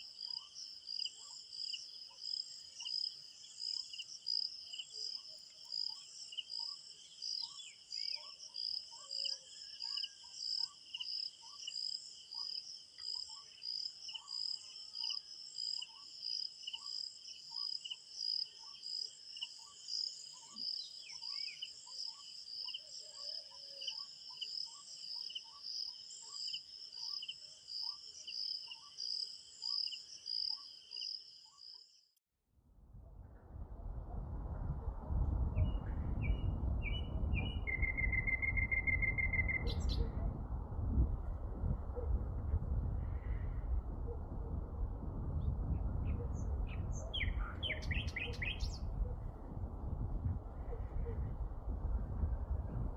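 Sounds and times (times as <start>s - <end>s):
bird chirps: 0.0s - 31.9s, 35.6s - 40.3s, 46.1s - 48.9s
crickets chirping: 0.0s - 32.1s, 36.2s - 40.1s.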